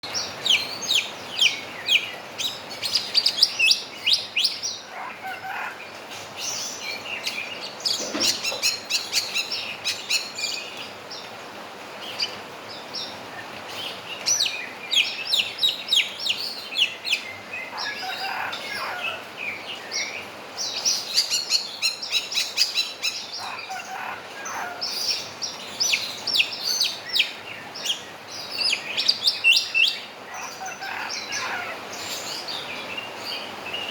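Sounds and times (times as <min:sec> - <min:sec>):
bird mimicking rooster crow: 0:17.8 - 0:19.3, 0:23.4 - 0:25.0.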